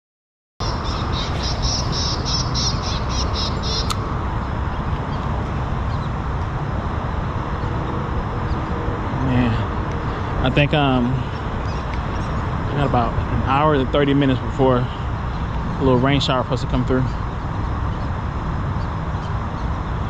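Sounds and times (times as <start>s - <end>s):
songbird chirping: 0.6s - 4.0s
outdoor background noise: 0.6s - 20.0s.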